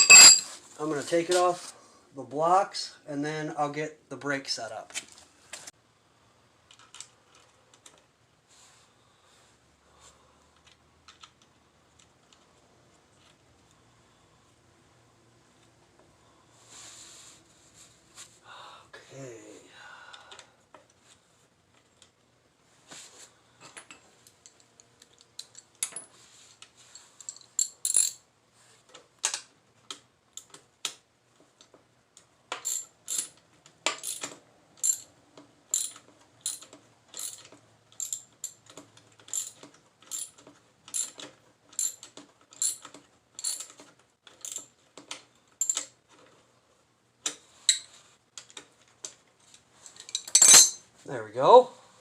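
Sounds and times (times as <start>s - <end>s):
hand tools clinking on metal: 0.0s - 0.6s, 49.9s - 50.8s
ratchet clicking: 35.7s - 38.6s, 39.3s - 41.2s, 42.6s - 43.8s.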